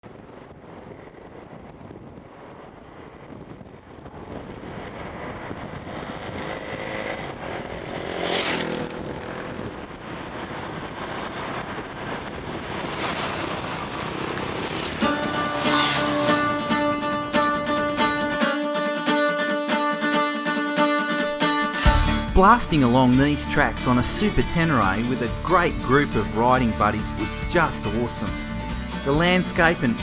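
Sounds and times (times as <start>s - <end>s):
wind noise: 0.0s - 19.3s
motorcycle engine running: 4.3s - 19.4s, 21.8s - 30.0s.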